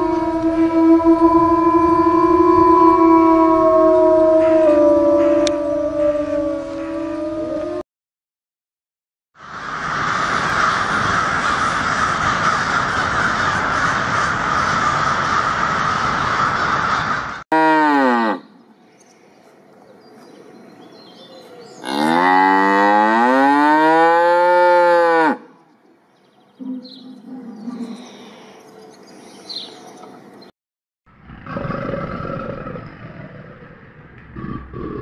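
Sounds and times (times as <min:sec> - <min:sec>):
cows mooing: 0:17.6 - 0:18.4, 0:21.8 - 0:25.4.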